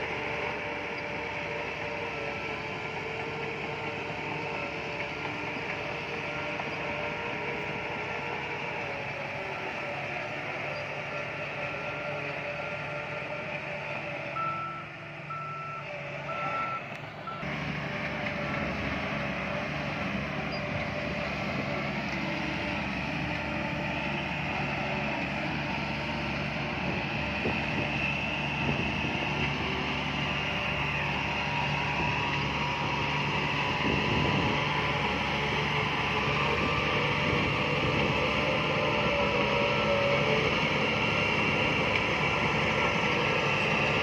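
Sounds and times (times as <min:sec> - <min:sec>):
diesel machinery engine running: 0:00.0 - 0:44.0
reversing alarm beeping: 0:14.4 - 0:17.5.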